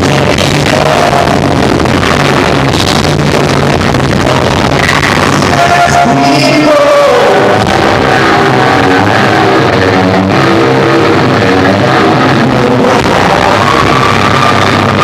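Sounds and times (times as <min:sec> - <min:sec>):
guitar line gliding downward: 0:04.0 - 0:15.0.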